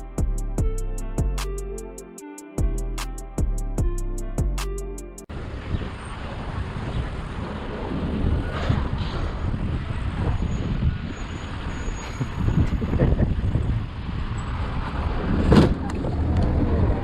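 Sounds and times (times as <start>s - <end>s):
vehicle road and engine rumble: 5.3s - 17.0s.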